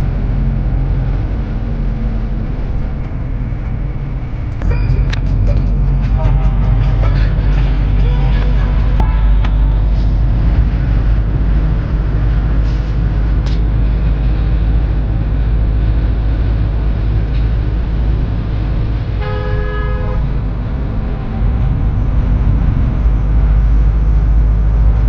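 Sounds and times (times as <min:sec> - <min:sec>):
vehicle rumbling: 0:00.0 - 0:25.0
vehicle horn: 0:04.6 - 0:10.4, 0:19.2 - 0:20.3.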